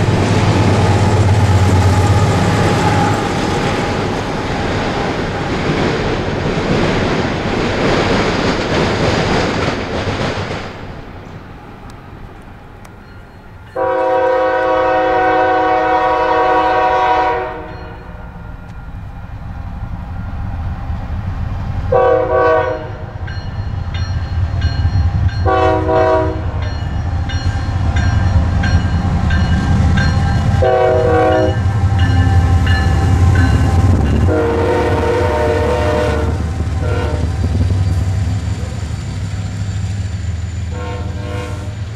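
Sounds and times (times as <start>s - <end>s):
diesel locomotives rumbling: 0.0s - 41.9s
freight train wheel noise: 0.0s - 41.9s
locomotive horn blasts: 13.8s - 18.2s, 21.9s - 23.1s, 25.4s - 26.6s, 30.4s - 37.4s, 40.7s - 41.9s.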